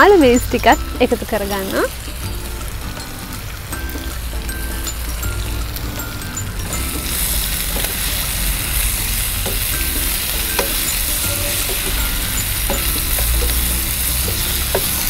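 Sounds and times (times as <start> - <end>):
food sizzling in a pan: 0.0 - 15.0
spoon clicking against pan: 9.4 - 15.0.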